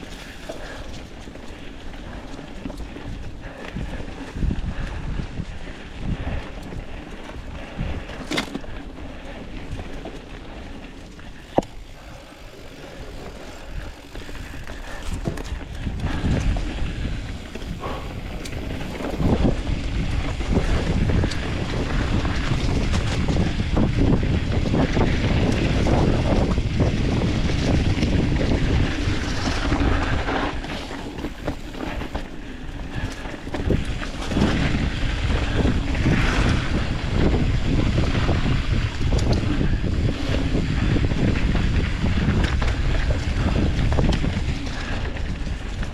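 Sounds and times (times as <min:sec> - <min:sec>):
wind rushing over microphone: 0:00.0 - 0:45.9
bike knocks and rattles: 0:07.9 - 0:09.3, 0:11.3 - 0:45.9.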